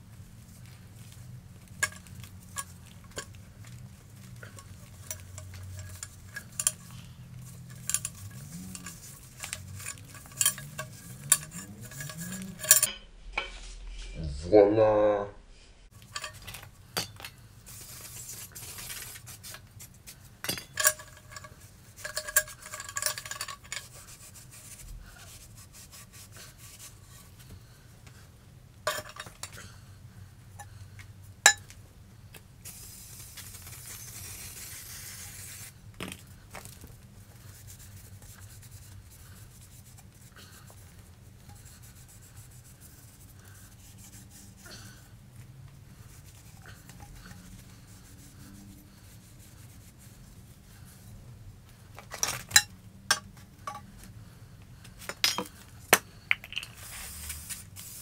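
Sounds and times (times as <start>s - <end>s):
metal tools clinking and rubbing: 1.0s - 14.2s, 16.0s - 24.8s, 28.9s - 29.6s, 46.2s - 47.6s, 55.0s - 55.7s.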